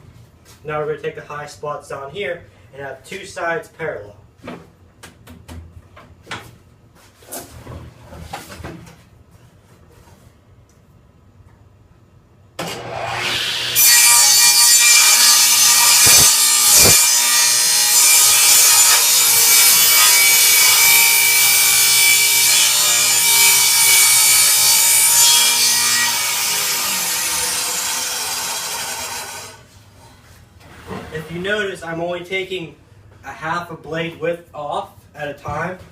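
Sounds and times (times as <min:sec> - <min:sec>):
table saw cutting board: 0:12.6 - 0:29.6.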